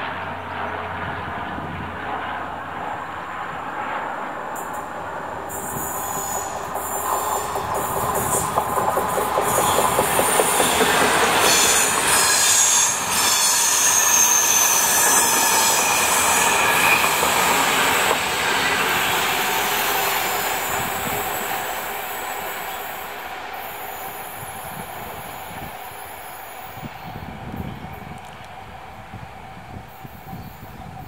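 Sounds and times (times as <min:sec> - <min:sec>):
diesel locomotive passing: 0:00.0 - 0:31.0
heavy wheel and rail noise: 0:00.0 - 0:31.0
high-pitched wheel squeal: 0:05.5 - 0:08.5, 0:09.2 - 0:21.4.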